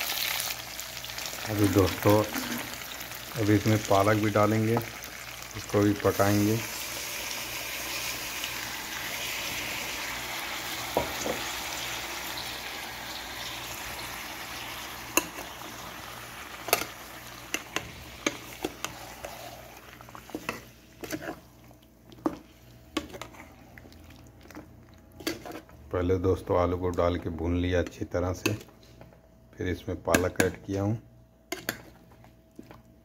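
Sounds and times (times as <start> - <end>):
food sizzling in hot oil: 0.0 - 21.3.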